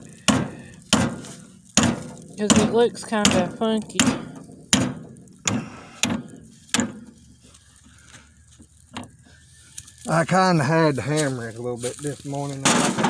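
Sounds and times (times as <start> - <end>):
hammer striking steel: 0.3 - 7.0.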